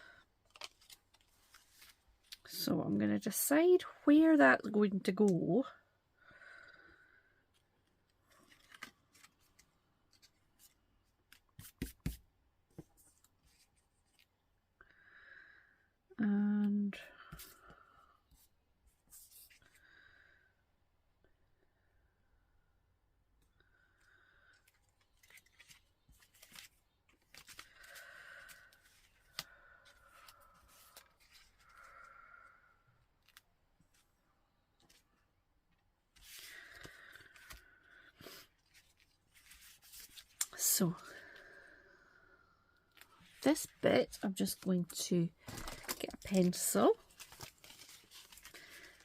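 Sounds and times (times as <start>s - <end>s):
paper rustling: 0.4s - 2.4s, 8.2s - 14.3s, 24.7s - 31.9s, 36.1s - 40.4s, 45.4s - 49.0s
paper rustling and tapping: 11.3s - 13.0s.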